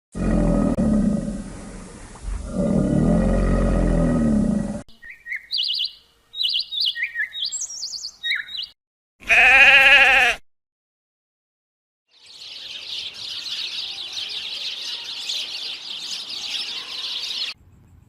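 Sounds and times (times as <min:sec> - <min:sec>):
deep animal roar: 0:00.1 - 0:04.9
small bird chirping: 0:04.9 - 0:08.8, 0:12.1 - 0:18.0
loud wavering bleat: 0:09.2 - 0:10.4.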